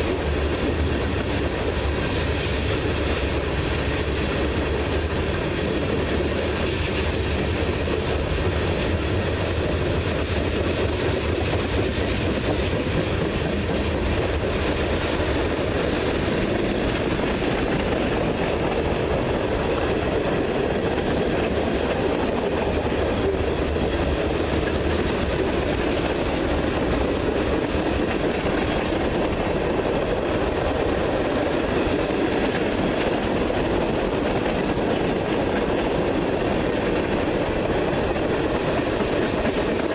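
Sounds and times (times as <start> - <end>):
train wheels on track: 0.0 - 39.9.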